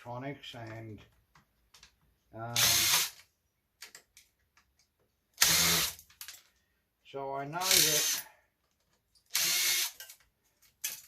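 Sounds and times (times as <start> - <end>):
power drill spinning up: 7.6 - 8.2, 9.3 - 10.0.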